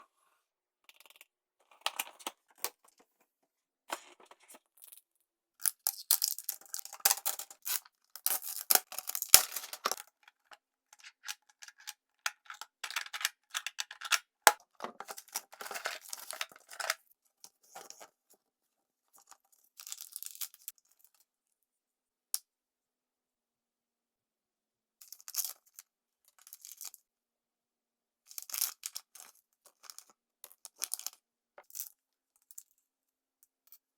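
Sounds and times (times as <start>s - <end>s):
packaging crinkling and tearing: 6.3s - 10.1s, 15.0s - 17.0s
plastic toys clicking: 8.3s - 17.0s.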